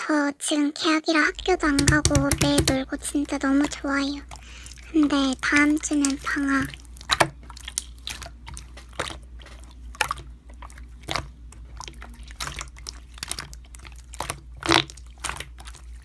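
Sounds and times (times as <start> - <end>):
slime squeezed popping and clicking: 14.2 - 15.7.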